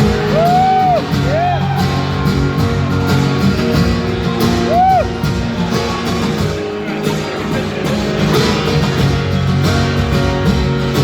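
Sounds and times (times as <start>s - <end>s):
audience cheering: 0.0s - 3.4s, 4.5s - 5.3s
acoustic guitar chords: 0.0s - 11.0s.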